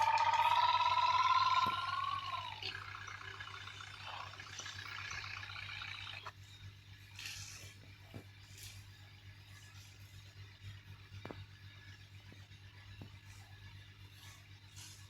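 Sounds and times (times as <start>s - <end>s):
quieter buzzing engine: 0.0s - 6.4s.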